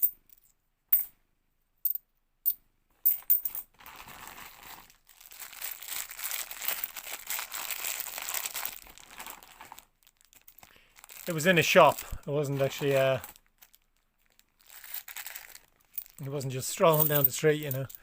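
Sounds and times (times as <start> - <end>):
coins clinking: 3.0 - 3.6, 16.0 - 18.0
plastic bag crinkling: 3.7 - 16.3.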